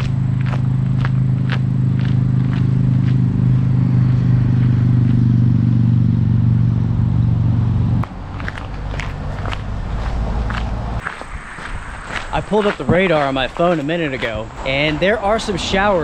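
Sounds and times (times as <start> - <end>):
faint footsteps on trail: 0.0 - 3.3, 8.0 - 16.0
engine running: 0.0 - 13.0.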